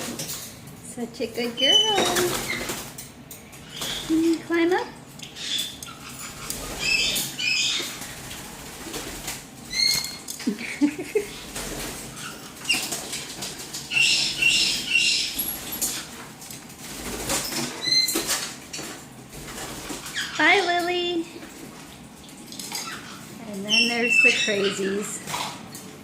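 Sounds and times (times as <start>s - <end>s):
parrot squeaky chirps: 1.6s - 2.6s, 5.2s - 7.9s, 9.7s - 10.2s, 13.9s - 15.5s, 22.8s - 25.2s.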